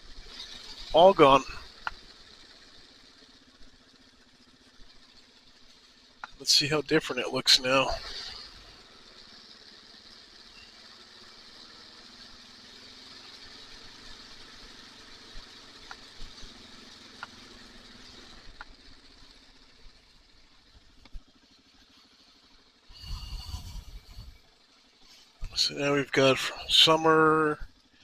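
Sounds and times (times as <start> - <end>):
motorcycle engine running: 0.0 - 28.0
low rumble: 22.9 - 24.4
wind hiss: 22.9 - 24.5.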